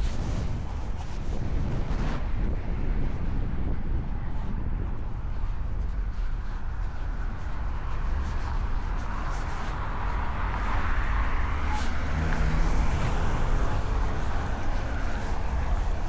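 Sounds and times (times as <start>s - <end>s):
wind on microphone: 0.0s - 16.0s
road vehicle passing: 9.0s - 16.0s.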